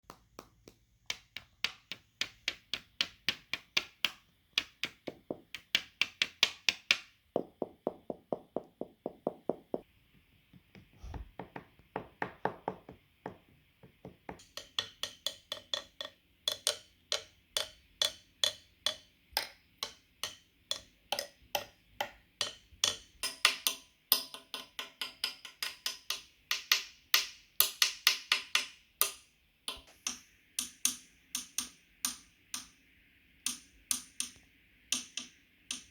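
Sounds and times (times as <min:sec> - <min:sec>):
rapid wooden tapping and knocking: 0:00.0 - 0:23.7.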